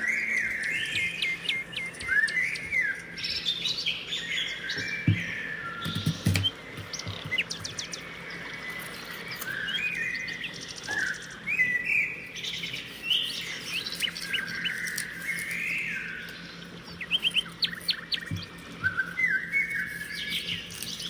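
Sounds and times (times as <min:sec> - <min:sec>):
birds chirping and whistling: 0:00.0 - 0:21.0
knock: 0:04.8 - 0:05.3.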